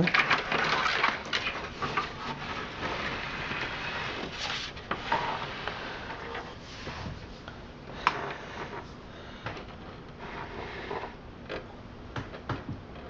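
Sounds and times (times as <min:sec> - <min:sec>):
computer case scraping on surface: 0:01.1 - 0:07.3.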